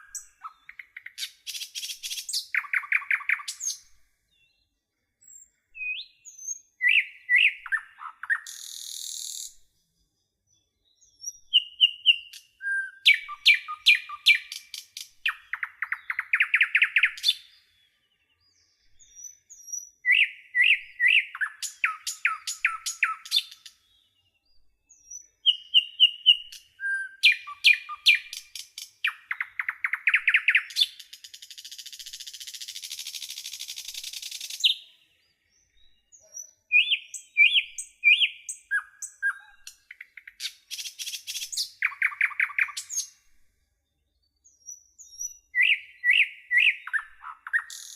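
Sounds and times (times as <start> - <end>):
bird song: 0.0 - 47.9.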